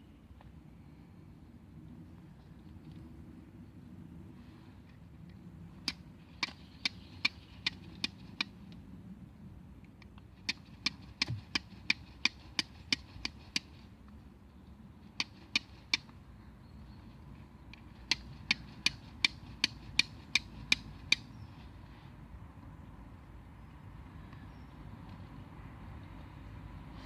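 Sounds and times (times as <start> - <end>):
sharp chopping knocks: 10.5 - 13.4.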